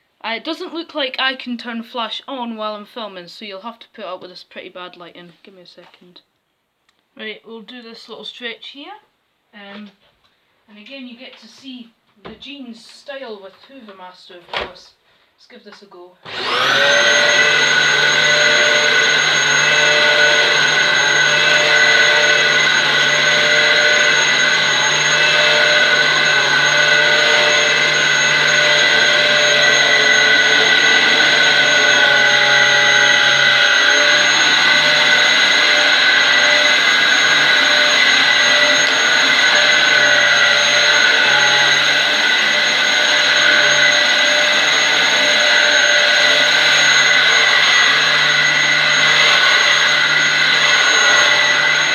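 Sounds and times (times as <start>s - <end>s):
vacuum cleaner motor whining: 16.2s - 51.9s.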